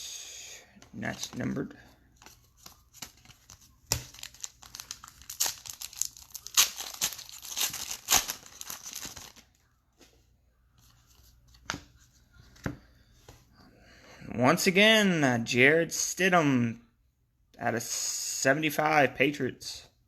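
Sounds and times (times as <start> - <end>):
wrapper torn and crinkled: 4.0 - 9.4.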